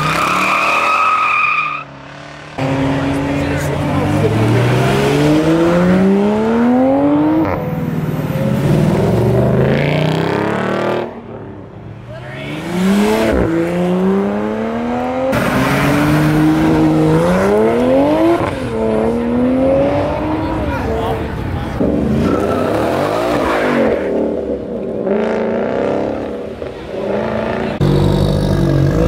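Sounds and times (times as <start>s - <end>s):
sports cars accelerating past: 1.9s - 11.6s, 12.5s - 21.0s.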